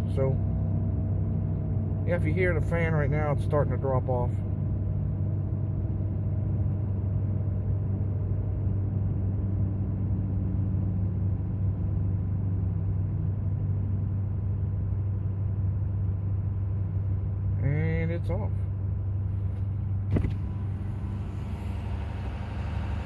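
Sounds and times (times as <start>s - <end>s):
diesel engine idling: 0.0s - 23.0s
radiator fan winding down: 19.9s - 23.0s.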